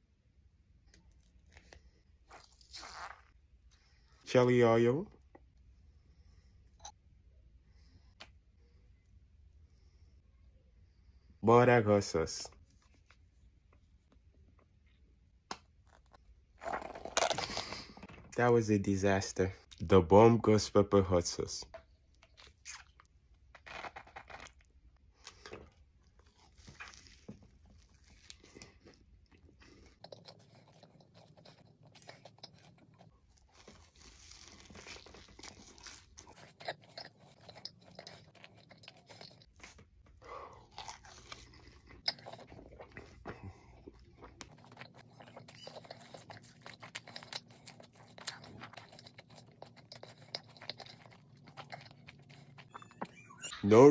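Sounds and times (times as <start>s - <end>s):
crunchy biting and chewing: 1.2s - 3.4s, 22.3s - 53.0s.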